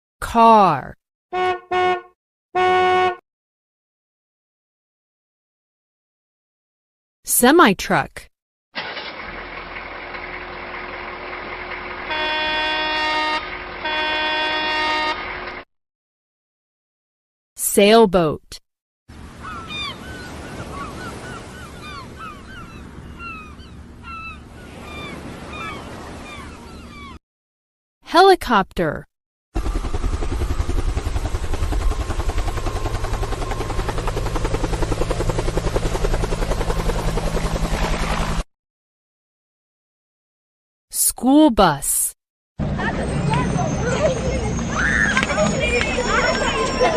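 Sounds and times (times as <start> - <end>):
air horn blasts: 1.3 - 3.2, 12.0 - 15.6
helicopter rotor chopping: 8.8 - 15.6, 29.6 - 38.4, 42.6 - 46.9
truck engine running: 8.8 - 15.6, 29.6 - 37.9, 42.6 - 46.9.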